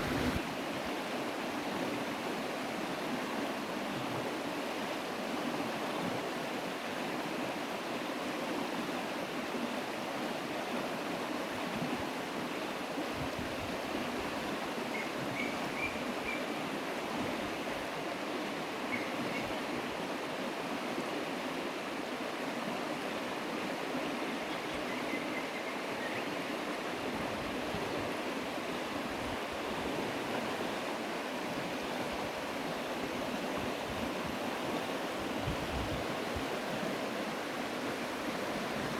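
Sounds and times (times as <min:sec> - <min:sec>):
running water: 0:00.0 - 0:00.4.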